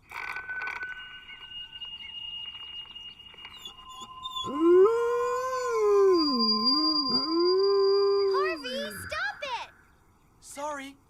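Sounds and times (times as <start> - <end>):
high electronic whining tones: 0.0 - 10.0
dog howling: 3.5 - 8.9.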